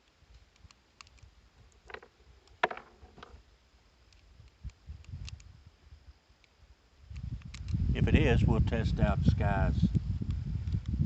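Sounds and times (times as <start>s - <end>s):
pistol handling clicks: 0.0s - 2.6s.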